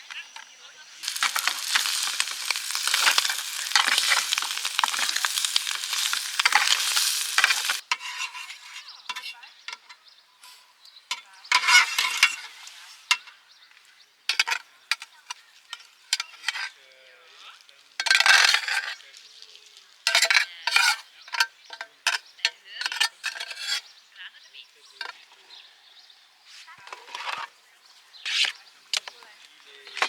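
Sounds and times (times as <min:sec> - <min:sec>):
food sizzling in a pan: 0:00.0 - 0:08.8, 0:11.5 - 0:13.2
stirring scrapes and clinks: 0:00.2 - 0:13.4, 0:14.3 - 0:24.0.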